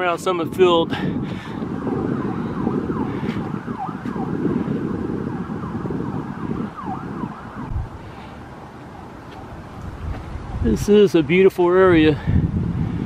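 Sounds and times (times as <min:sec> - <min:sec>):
distant siren yelping: 0:01.6 - 0:07.8.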